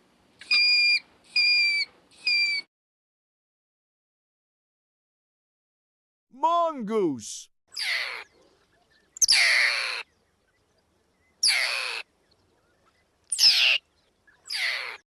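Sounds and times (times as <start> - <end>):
mongoose screeching: 7.8 - 8.2, 9.2 - 10.0, 11.4 - 12.0, 13.3 - 13.8, 14.5 - 15.0.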